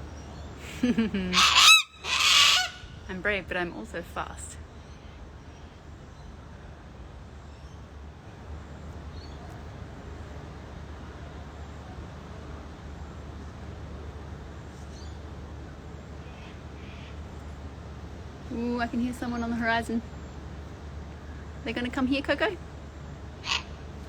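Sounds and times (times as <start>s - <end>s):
low outdoor rumble: 0.0s - 24.0s
faint bird calls: 0.1s - 3.1s, 16.2s - 17.6s, 23.4s - 23.9s.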